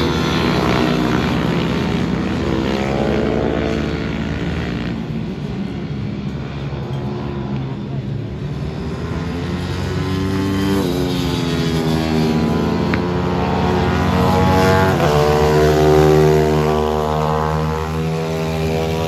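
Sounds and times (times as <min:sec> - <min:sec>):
motorcycle engine accelerating: 0:08.5 - 0:19.0.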